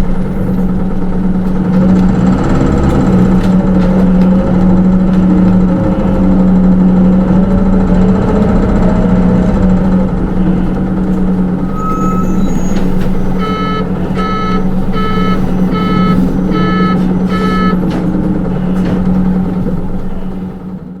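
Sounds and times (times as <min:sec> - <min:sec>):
bus engine humming: 0:00.0 - 0:21.0
buzzer beeping: 0:13.4 - 0:17.9.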